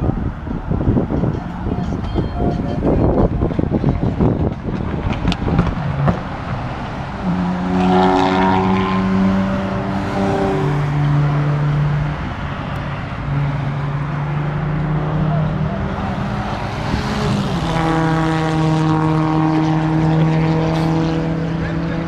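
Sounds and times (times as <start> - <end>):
cars driving past: 0.0 - 22.0
exhaust pops: 3.5 - 6.6.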